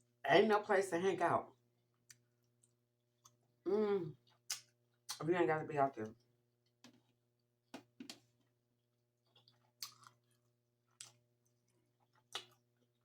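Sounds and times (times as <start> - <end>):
person chewing: 9.2 - 13.0.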